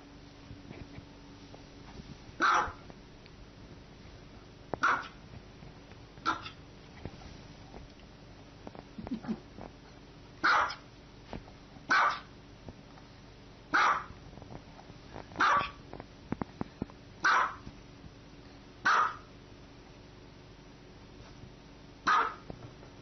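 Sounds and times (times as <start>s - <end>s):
dog barking: 2.4s - 2.8s, 4.8s - 5.2s, 6.2s - 6.6s, 10.4s - 10.8s, 11.9s - 12.3s, 13.7s - 14.2s, 15.4s - 15.8s, 17.2s - 17.6s, 18.8s - 19.3s, 22.0s - 22.5s.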